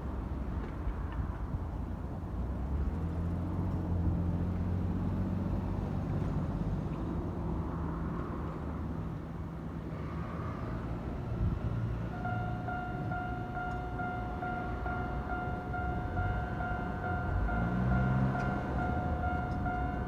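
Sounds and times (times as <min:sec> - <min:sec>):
road noise: 0:00.0 - 0:20.0
vehicle engine humming: 0:11.4 - 0:20.0.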